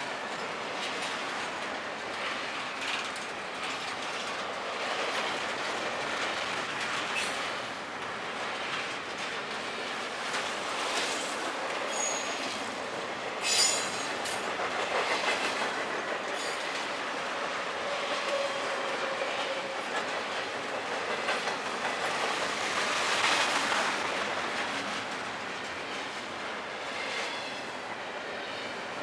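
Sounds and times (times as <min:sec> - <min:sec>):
freight train wheels clattering: 0:00.2 - 0:27.8
sharp metallic squeal: 0:11.9 - 0:12.5, 0:13.4 - 0:14.1.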